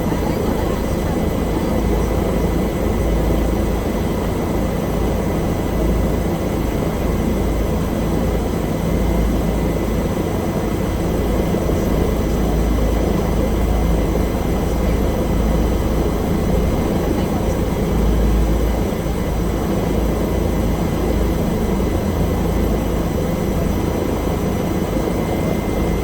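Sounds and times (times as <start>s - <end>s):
helicopter rotor and engine drone: 0.0s - 26.0s
high engine whine: 0.0s - 26.0s.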